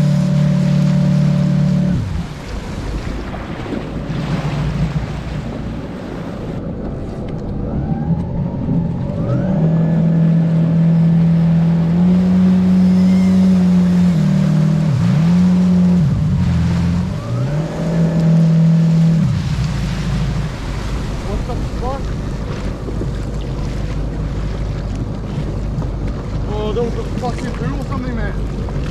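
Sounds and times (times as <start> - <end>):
boat engine running: 0.0 - 28.9
rushing water: 0.0 - 28.9
wind: 0.0 - 28.9.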